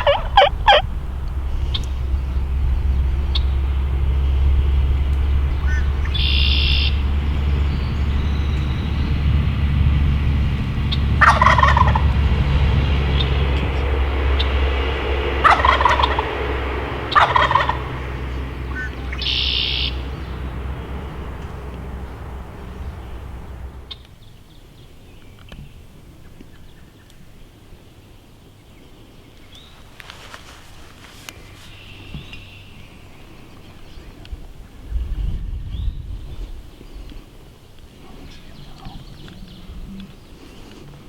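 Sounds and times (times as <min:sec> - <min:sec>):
turkey gobbling: 0:00.0 - 0:01.9, 0:10.9 - 0:24.0
steady low rumble: 0:00.0 - 0:24.5, 0:29.7 - 0:37.4.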